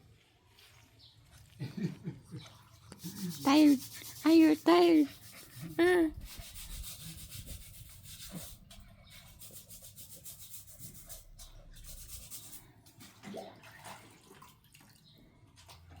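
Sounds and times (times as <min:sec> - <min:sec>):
faint rustling and rubbing: 0:03.0 - 0:12.7.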